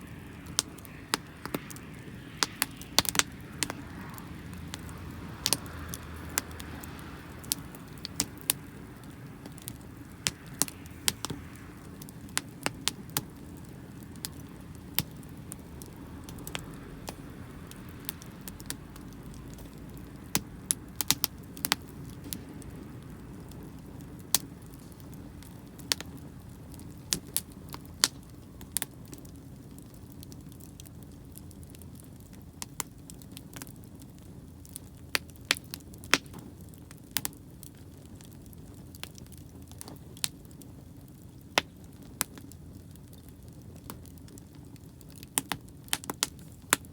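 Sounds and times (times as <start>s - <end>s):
steady low background rumble: 0.0s - 33.1s
wood fire crackling and popping: 0.0s - 46.9s.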